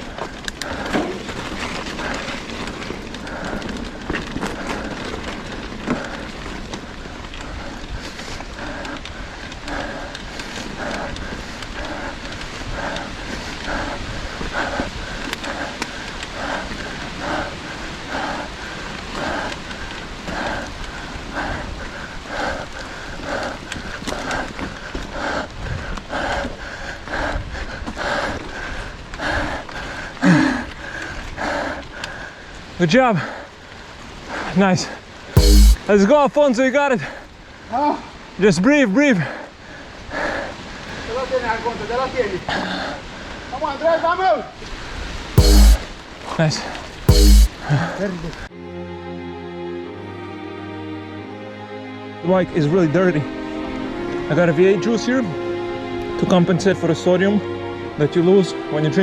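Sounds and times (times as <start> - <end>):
bike tyre and drivetrain noise: 0.0 - 25.5
low wind: 0.0 - 59.0
bike clicks and knocks: 0.2 - 6.2
heavy rhythmic breathing: 7.4 - 30.0, 35.4 - 35.9, 45.4 - 45.8, 47.1 - 47.7.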